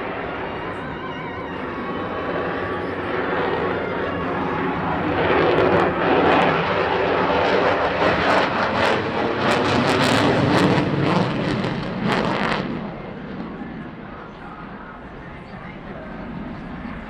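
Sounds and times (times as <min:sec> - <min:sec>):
jet engine roar with crackling: 0:00.0 - 0:17.0.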